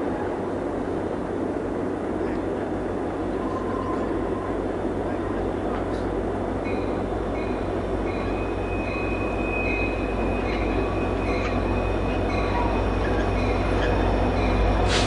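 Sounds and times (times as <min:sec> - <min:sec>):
freight train rumbling past: 0:00.0 - 0:15.0
train wheel squeal: 0:03.4 - 0:04.6, 0:06.6 - 0:15.0.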